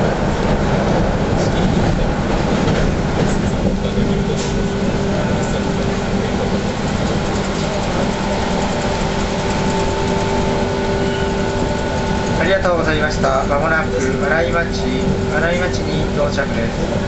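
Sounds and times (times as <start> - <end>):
train wheels rumbling on rail: 0.0 - 17.0
steady electric whine: 3.9 - 17.0.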